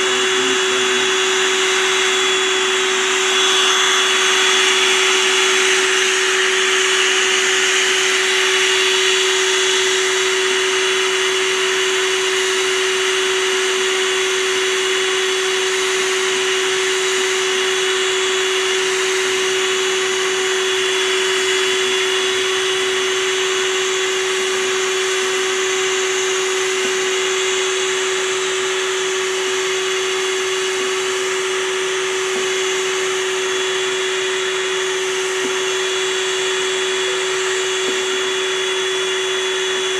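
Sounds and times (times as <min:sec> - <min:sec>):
small motor humming and whining: 0:00.0 - 0:39.9.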